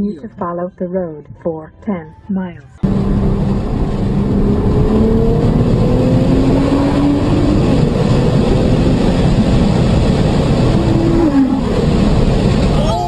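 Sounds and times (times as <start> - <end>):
car engine accelerating: 2.8 - 13.0
road and wind noise: 2.8 - 13.0.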